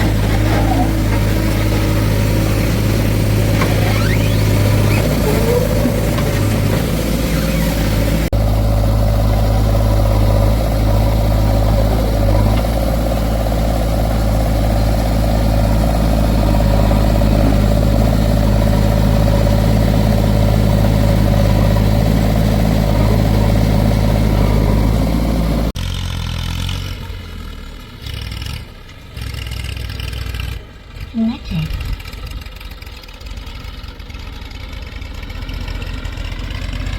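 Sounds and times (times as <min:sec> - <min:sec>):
diesel engine humming: 0:00.0 - 0:36.9.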